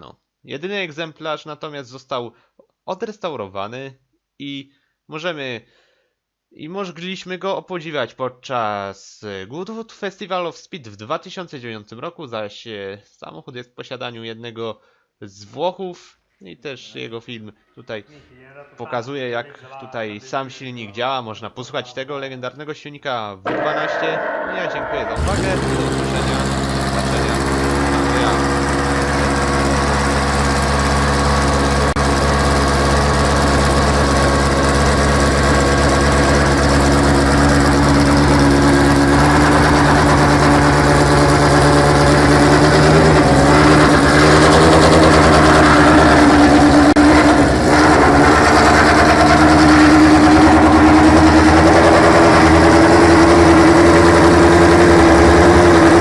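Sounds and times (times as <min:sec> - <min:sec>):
racing car engine idling: 0:23.5 - 0:56.0.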